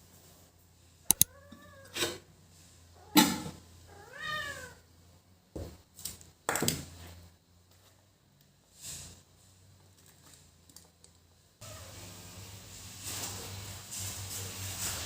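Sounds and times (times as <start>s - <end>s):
cat meowing: 1.1s - 2.0s, 3.9s - 4.8s.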